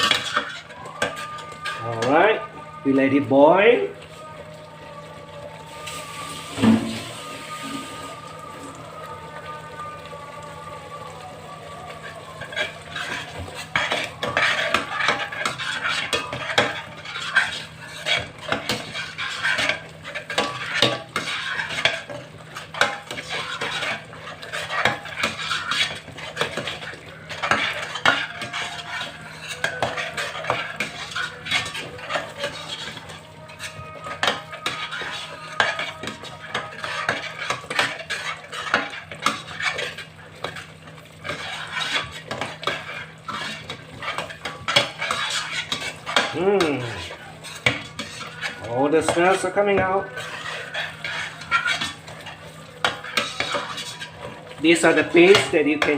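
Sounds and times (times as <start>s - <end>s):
metal utensil scraping cooking pot: 0.0s - 2.5s, 6.4s - 7.2s, 12.4s - 55.9s.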